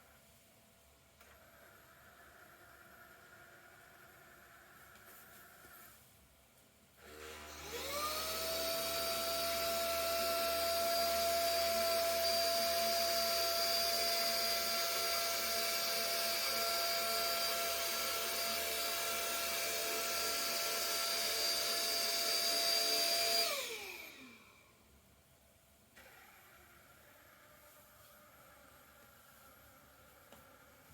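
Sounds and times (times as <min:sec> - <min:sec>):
vacuum cleaner motor whining: 0:07.0 - 0:24.7, 0:26.0 - 0:30.9.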